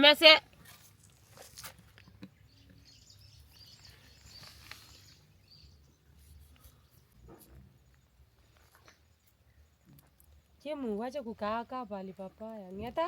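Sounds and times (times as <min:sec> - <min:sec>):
faint high bird chirps: 0:02.4 - 0:07.2.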